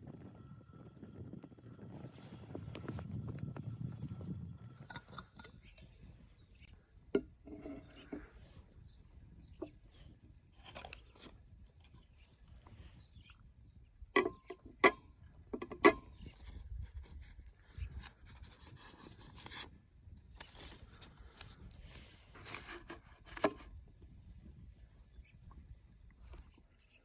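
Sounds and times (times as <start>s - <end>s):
rustling and scraping handling noise: 4.8s - 13.4s, 14.2s - 23.8s.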